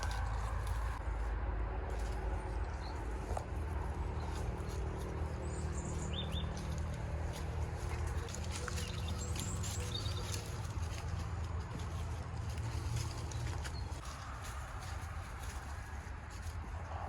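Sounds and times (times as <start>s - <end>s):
low outdoor rumble: 0.0s - 17.0s
small birds chirping: 2.6s - 14.0s.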